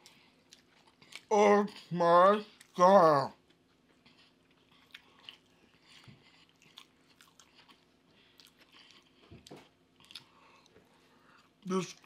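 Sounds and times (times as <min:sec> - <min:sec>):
chewing and crunching: 0:00.0 - 0:12.0.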